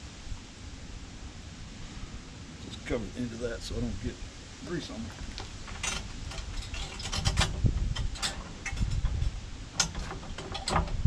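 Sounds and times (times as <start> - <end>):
hose scraping on steel boom: 4.8 - 11.0.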